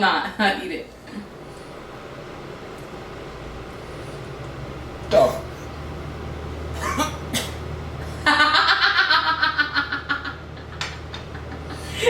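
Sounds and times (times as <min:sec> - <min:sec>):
person laughing: 0:08.2 - 0:12.0.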